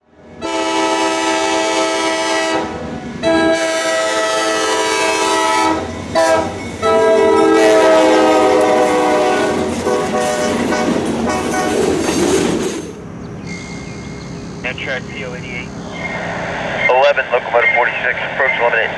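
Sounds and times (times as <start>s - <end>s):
train rumble and wheel clatter: 0.0s - 18.9s
locomotive air horn blasts: 0.4s - 11.8s.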